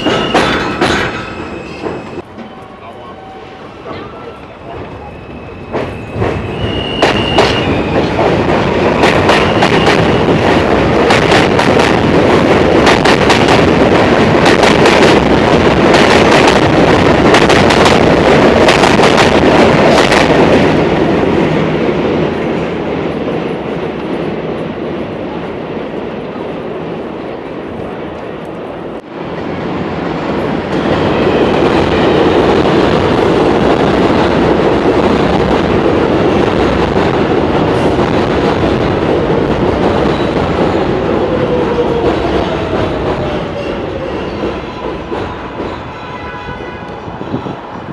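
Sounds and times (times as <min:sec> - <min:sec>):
train wheels clicking over rail joints: 0:00.0 - 0:02.5
high wheel squeal: 0:00.0 - 0:08.2
heavy train rumble: 0:00.0 - 0:47.9.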